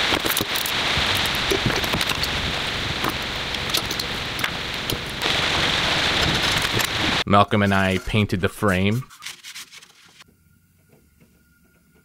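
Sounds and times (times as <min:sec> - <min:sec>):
rain hissing: 0:00.0 - 0:09.0.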